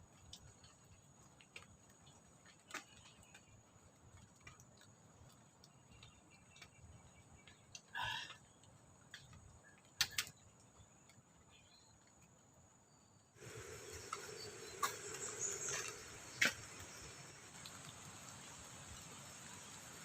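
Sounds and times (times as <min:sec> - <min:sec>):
sharp clicks: 0:10.0 - 0:10.6
insects trilling: 0:13.4 - 0:20.0
steady hiss: 0:13.4 - 0:20.0.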